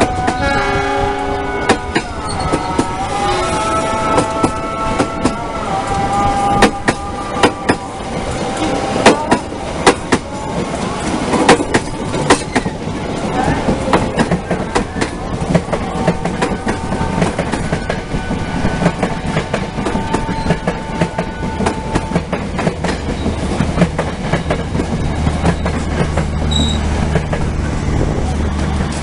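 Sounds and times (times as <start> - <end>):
low train rumble: 0.0 - 29.0
train wheel squeals: 1.6 - 5.4, 12.2 - 12.8, 19.8 - 22.3, 22.9 - 23.6, 25.3 - 27.2
train wheels clattering: 1.6 - 29.0.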